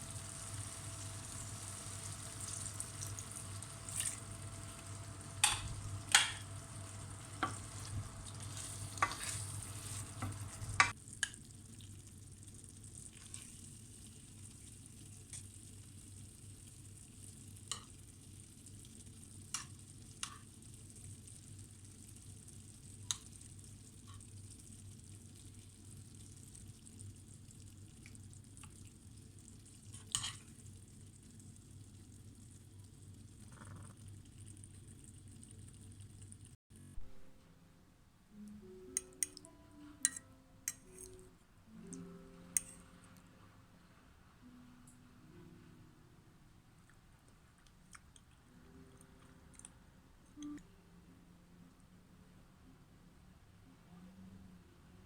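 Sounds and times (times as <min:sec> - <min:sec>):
food sizzling in a frying pan: 0:00.0 - 0:34.0
utensil scraping against pan: 0:07.4 - 0:10.9.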